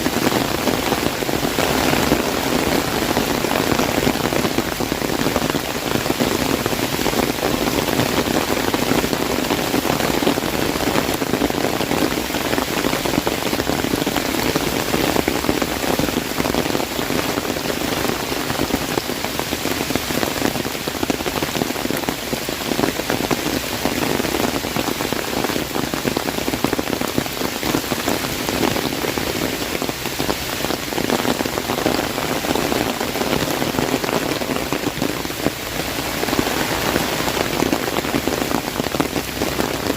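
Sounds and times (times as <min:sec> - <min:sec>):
heavy rain on umbrella: 0:00.0 - 0:39.9.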